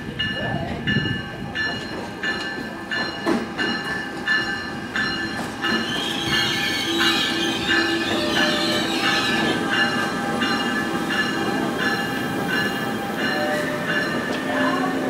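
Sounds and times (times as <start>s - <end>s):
train wheels rumbling: 0.0s - 15.0s
locomotive bell ringing: 0.1s - 15.0s
wheels squealing: 5.7s - 9.8s.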